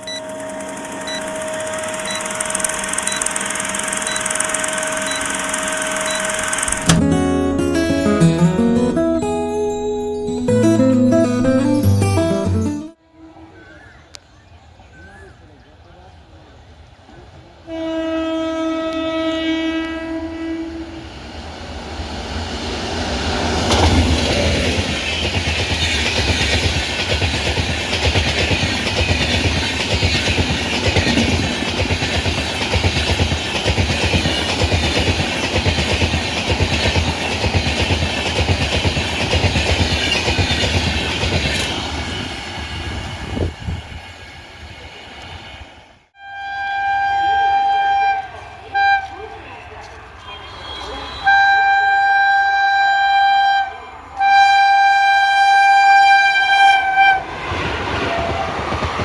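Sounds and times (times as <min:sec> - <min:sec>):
train horn: 0:17.7 - 0:21.2, 0:46.2 - 0:49.3, 0:50.2 - 0:57.3
train wheels clattering over rail joints: 0:23.4 - 0:42.4.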